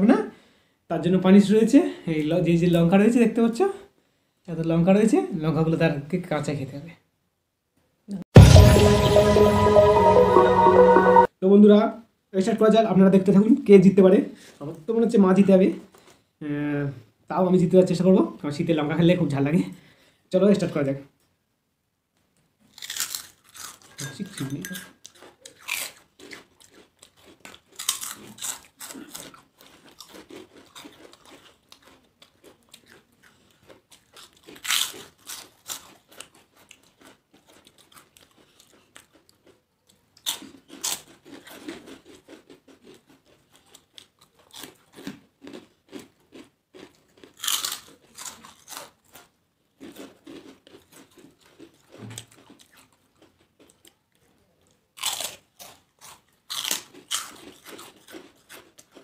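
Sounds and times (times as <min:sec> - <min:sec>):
crunching crisp papads: 0:22.6 - 0:59.0.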